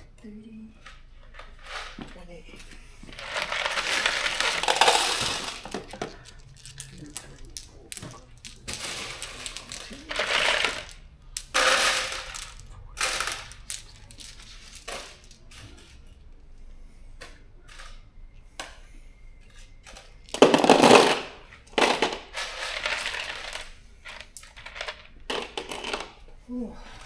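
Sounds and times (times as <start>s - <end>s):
bolts and washers clinking: 3.1s - 16.0s.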